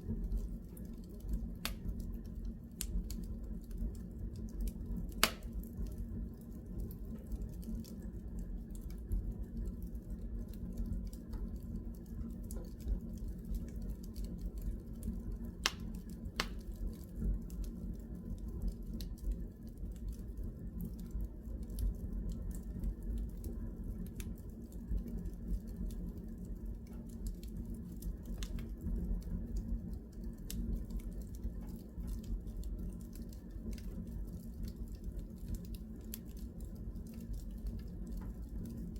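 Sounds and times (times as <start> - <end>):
wood fire crackling: 0.0 - 38.9
sharp fire pops: 5.2 - 5.6.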